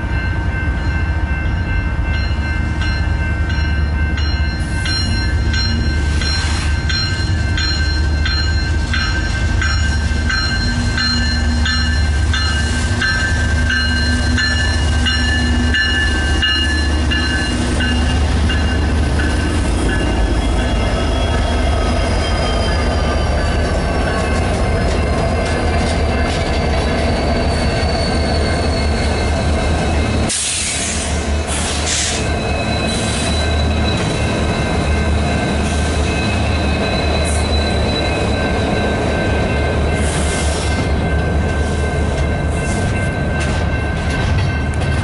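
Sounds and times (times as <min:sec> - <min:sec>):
diesel locomotive engines rumbling: 0:00.0 - 0:45.0
bell ringing: 0:00.1 - 0:30.2
wheels squealing on rail: 0:04.6 - 0:41.0.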